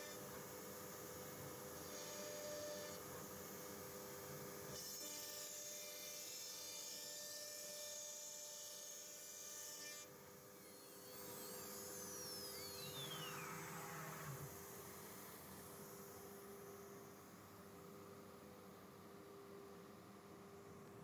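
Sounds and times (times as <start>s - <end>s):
motor whines gliding down: 12.0s - 14.9s.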